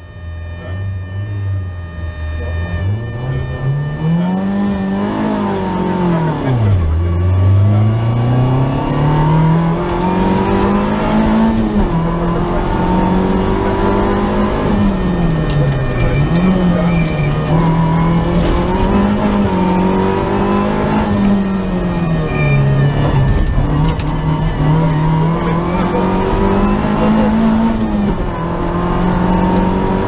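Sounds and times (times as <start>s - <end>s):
car engine accelerating hard: 0.0s - 30.0s.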